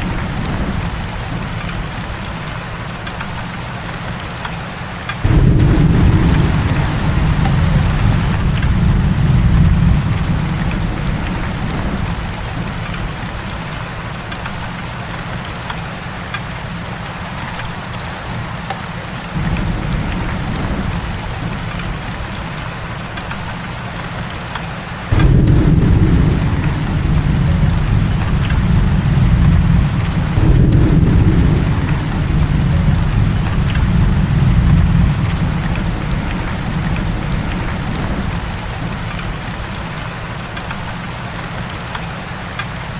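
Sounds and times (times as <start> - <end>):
deep rumble of thunder: 0.0 - 2.6, 5.2 - 14.8, 19.4 - 23.7, 25.1 - 41.0
heavy rain pouring: 0.0 - 42.9.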